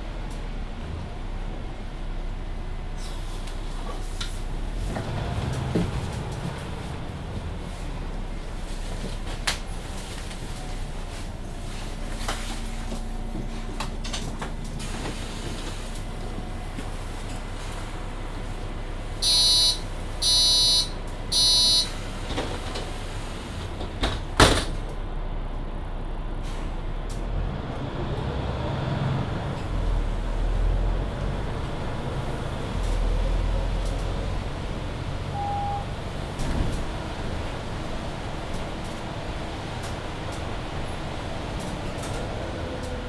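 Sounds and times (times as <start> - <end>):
bus interior noise: 0.0 - 43.0
low rumble of bus moving off: 0.0 - 43.0
bus doors shutting: 2.9 - 25.7, 26.3 - 43.0
door-closing warning: 19.2 - 22.0
short electronic beeps: 19.2 - 22.0, 35.3 - 35.9.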